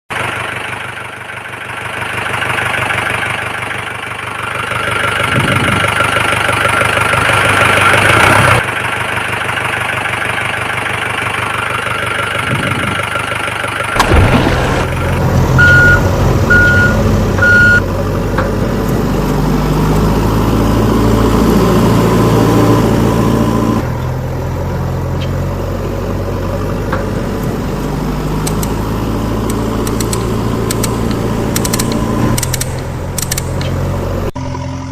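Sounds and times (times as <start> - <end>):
vehicle engine running: 0.1 - 34.9
short beeps: 15.6 - 17.8.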